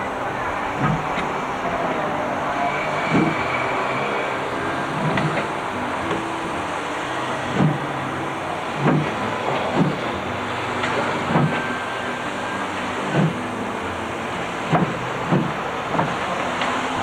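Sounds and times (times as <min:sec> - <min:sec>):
train rumbling: 0:00.0 - 0:17.0
sharp knocks: 0:14.7 - 0:16.3.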